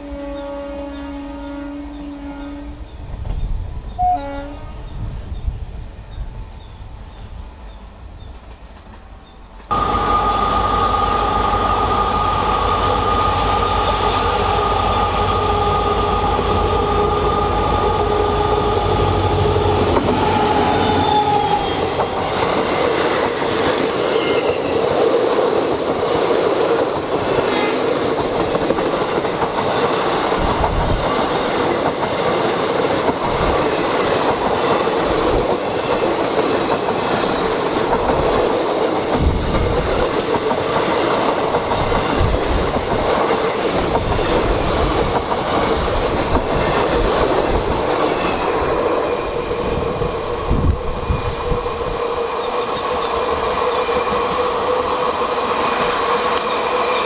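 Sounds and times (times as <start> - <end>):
train horn blast: 0.0 - 2.9, 4.0 - 5.0, 9.7 - 22.8
train rumbling and rattling: 1.9 - 57.0.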